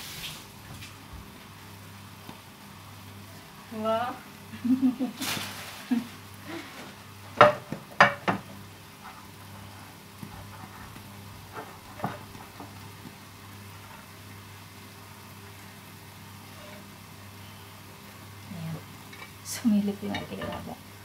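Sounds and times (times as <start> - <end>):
faint steady hum: 0.0 - 21.0
utensil knocking on cookware: 7.4 - 8.4.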